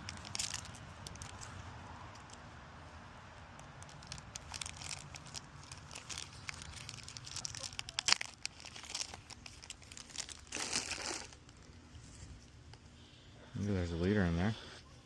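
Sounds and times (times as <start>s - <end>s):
foil packs crinkling: 0.0s - 2.4s, 3.5s - 12.9s.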